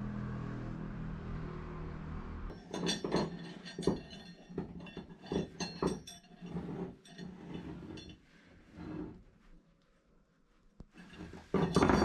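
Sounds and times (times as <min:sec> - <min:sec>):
metal pieces knocking and clinking: 0:02.5 - 0:06.5, 0:11.2 - 0:12.0.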